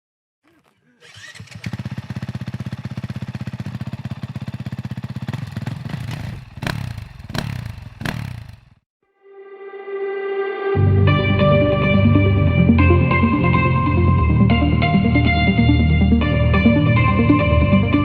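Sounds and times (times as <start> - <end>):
motorcycle engine idling and revving: 1.0 - 8.8.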